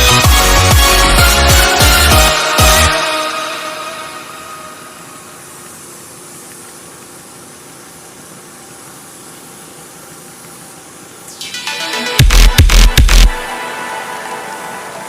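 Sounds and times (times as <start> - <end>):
electronic background music: 0.0 - 5.4, 11.3 - 15.0
steady hiss: 2.3 - 15.0.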